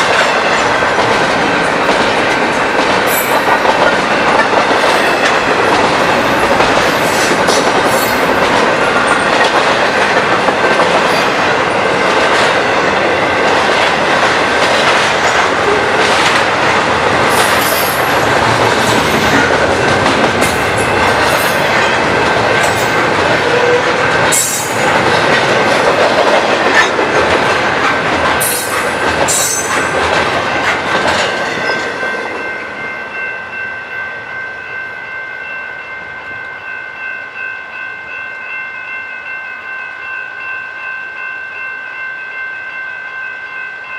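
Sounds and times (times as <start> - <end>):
train cars rumbling: 0.0 - 33.6.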